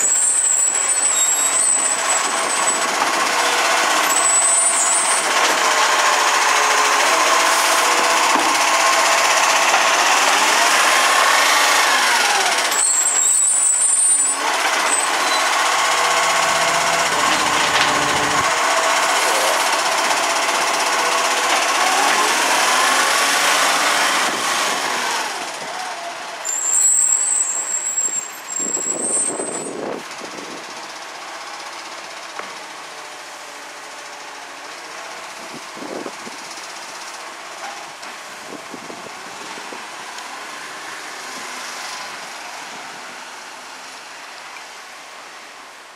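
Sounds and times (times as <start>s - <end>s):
air brakes squealing: 0.0s - 3.0s, 3.7s - 5.4s, 12.0s - 18.6s, 26.4s - 30.0s
garbage truck engine running: 0.2s - 27.1s.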